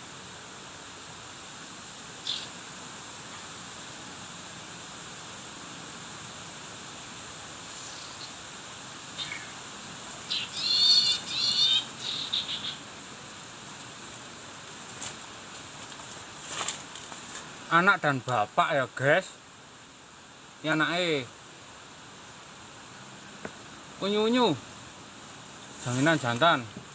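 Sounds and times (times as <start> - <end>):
steady hiss: 0.0 - 26.9
small bird calling: 2.2 - 2.7, 7.6 - 13.0.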